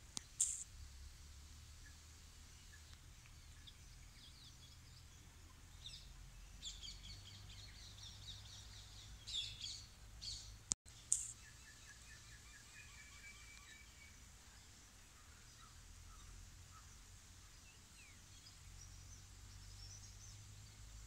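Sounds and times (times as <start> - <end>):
small birds chirping: 0.0 - 21.0
sharp click: 0.1 - 0.7, 11.1 - 11.4
lower repeated bird calls: 1.6 - 21.0.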